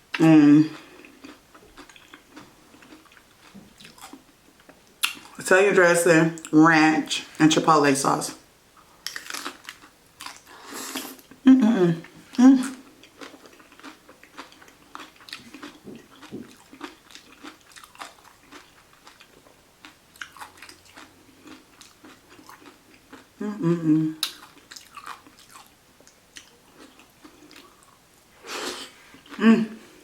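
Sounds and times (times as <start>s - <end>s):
wet crunchy chewing: 0.8s - 4.3s, 9.0s - 11.2s, 13.0s - 23.3s, 24.2s - 25.7s.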